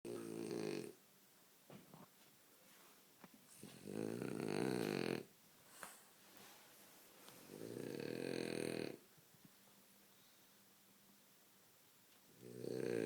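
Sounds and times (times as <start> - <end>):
dog snoring: 0.1 - 1.0, 3.6 - 5.3, 7.5 - 9.0, 12.4 - 13.0
dog snorting: 3.7 - 5.2.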